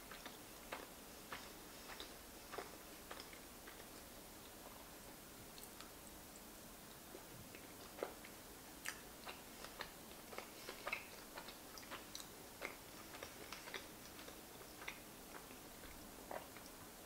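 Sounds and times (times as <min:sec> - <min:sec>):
wet chewing: 0:00.0 - 0:04.8, 0:05.5 - 0:16.9
wet mouth clicks and smacks: 0:07.9 - 0:16.8.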